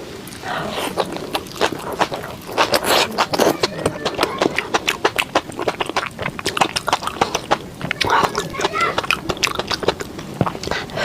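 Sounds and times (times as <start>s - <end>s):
chewing and crunching food: 0.0s - 11.0s.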